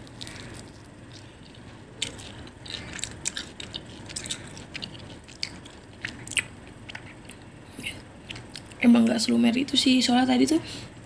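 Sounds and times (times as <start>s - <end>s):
crisp spring roll crunching: 0.0s - 7.6s, 8.2s - 8.8s.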